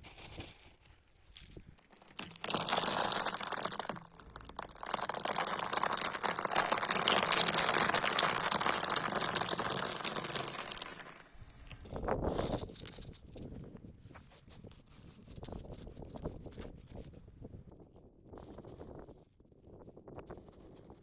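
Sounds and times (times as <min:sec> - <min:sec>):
tyre crushing crackling objects: 0:01.8 - 0:11.3.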